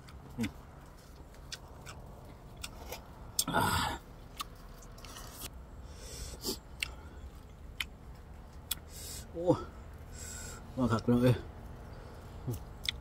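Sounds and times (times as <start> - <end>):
person chewing: 0.0 - 5.6, 6.3 - 9.3, 12.4 - 13.0.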